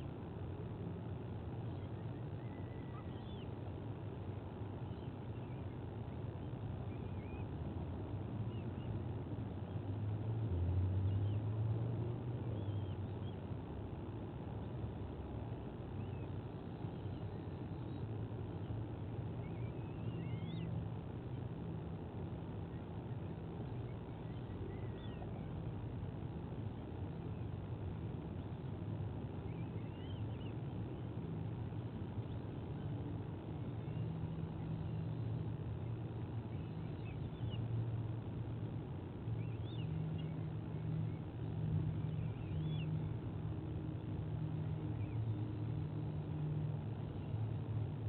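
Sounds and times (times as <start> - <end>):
steady low hum: 0.0 - 48.0
thin bird calls: 1.6 - 3.8, 29.4 - 30.7.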